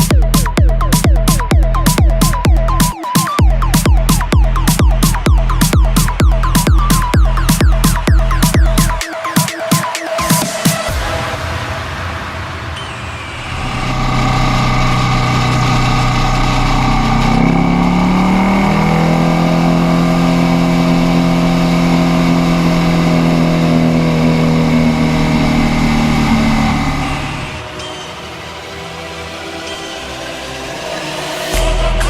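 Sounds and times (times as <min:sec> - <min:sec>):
motorcycle engine running: 0:03.4 - 0:09.0, 0:13.6 - 0:27.4.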